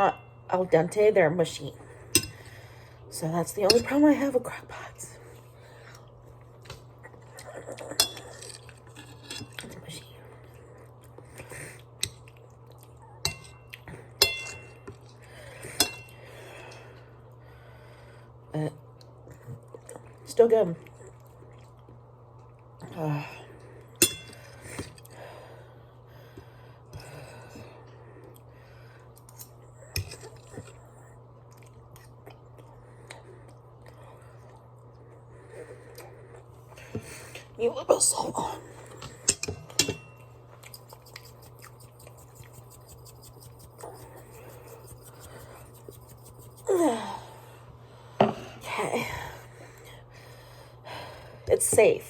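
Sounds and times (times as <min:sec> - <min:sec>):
steady low hum: 0:00.0 - 0:52.0
cutlery clinking against a dish: 0:08.0 - 0:09.6, 0:13.3 - 0:14.8, 0:15.8 - 0:16.2, 0:24.0 - 0:24.4, 0:39.2 - 0:40.2
wet mouth chewing: 0:40.5 - 0:46.7.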